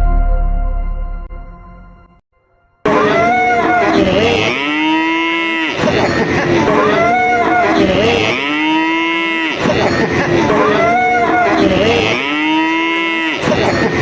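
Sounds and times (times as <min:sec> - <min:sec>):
cattle mooing: 0:02.9 - 0:14.0.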